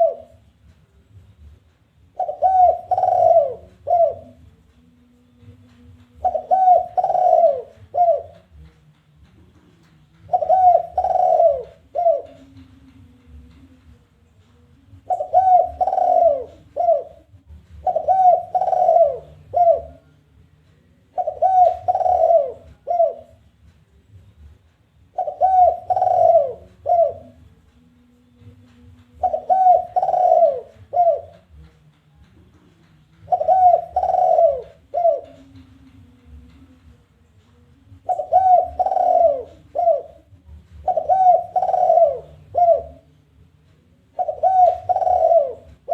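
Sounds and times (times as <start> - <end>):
dove cooing: 0.0 - 0.4, 2.1 - 4.4, 5.4 - 8.6, 10.2 - 13.5, 14.9 - 20.1, 21.1 - 23.4, 25.1 - 27.5, 29.1 - 31.7, 33.2 - 36.7, 37.9 - 43.2, 44.1 - 45.9.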